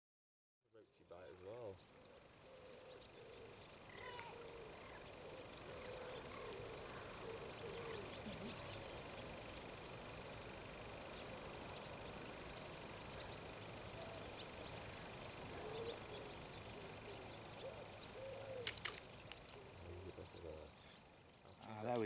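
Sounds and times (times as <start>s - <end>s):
birds chirping: 0.8s - 22.0s
rising and falling bird calls: 1.2s - 22.0s
sharp clicks: 18.5s - 19.6s.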